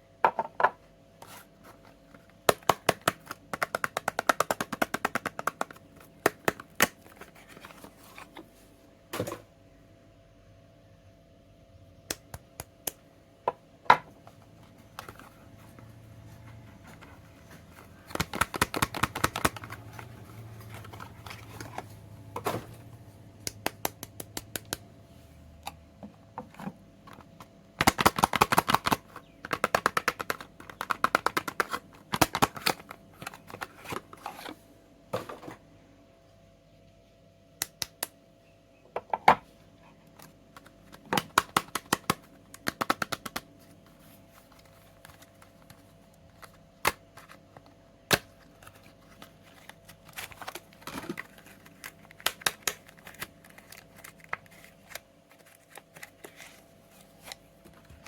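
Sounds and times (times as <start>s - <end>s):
soap wrapping crackling: 48.1s - 58.0s.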